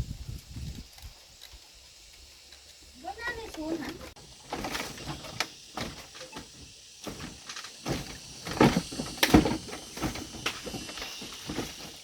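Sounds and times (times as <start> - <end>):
knocks and clatters: 4.5 - 12.0.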